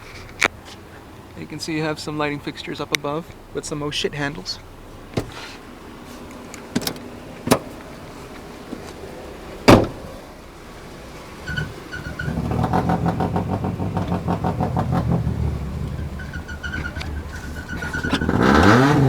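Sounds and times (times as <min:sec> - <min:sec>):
car engine running: 0:00.0 - 0:19.0
loud thump: 0:09.7 - 0:10.1.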